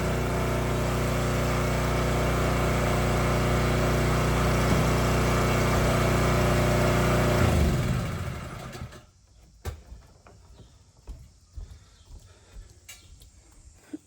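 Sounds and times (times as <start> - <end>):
pressure washer engine shutting off: 0.0 - 9.1.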